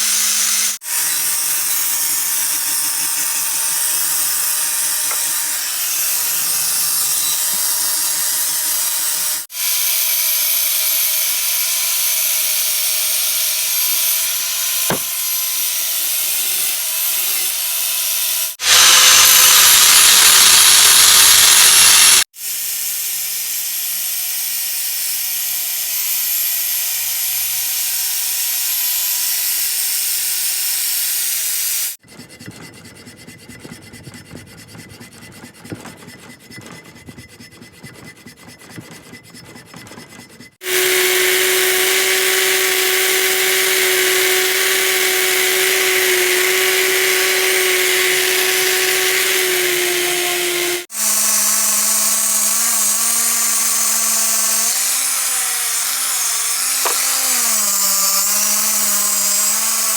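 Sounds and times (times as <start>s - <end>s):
high-speed power tool motor: 0.0s - 32.0s, 40.6s - 59.9s
lower-pitched motor grinding metal: 18.4s - 22.2s, 32.0s - 59.9s
scratchy hand scraping: 32.1s - 50.9s.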